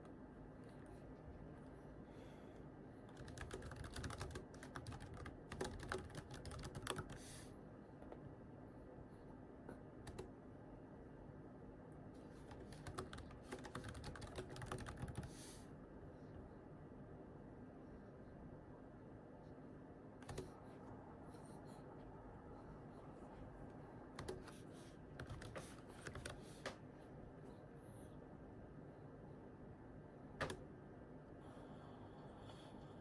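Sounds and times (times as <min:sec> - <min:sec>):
computer keyboard typing: 0:03.1 - 0:07.3, 0:10.0 - 0:10.3, 0:12.4 - 0:15.4, 0:20.2 - 0:20.6, 0:24.1 - 0:26.8, 0:30.4 - 0:30.6.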